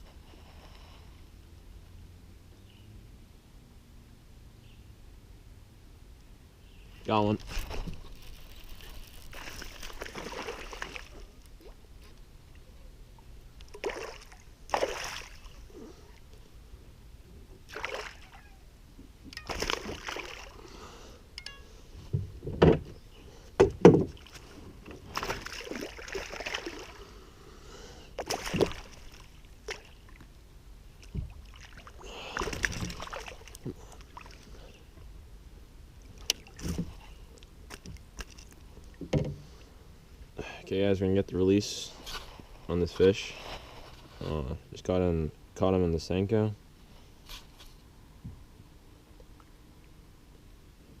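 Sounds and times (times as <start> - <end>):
water splashing by a kayak: 7.4 - 11.9, 13.6 - 16.2, 17.6 - 18.4, 19.4 - 20.7, 23.7 - 27.2, 28.1 - 30.3, 30.9 - 34.6.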